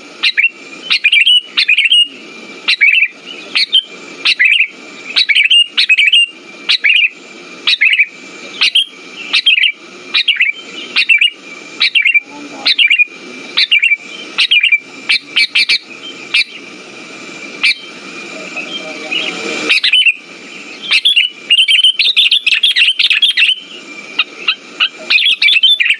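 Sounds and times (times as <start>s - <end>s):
bulbul chirpy calls: 0.0s - 25.9s.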